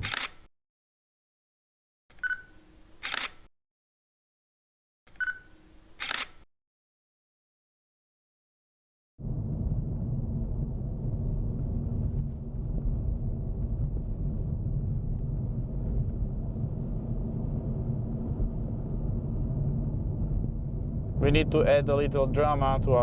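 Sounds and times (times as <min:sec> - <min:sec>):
car interior road rumble: 0:09.2 - 0:23.0.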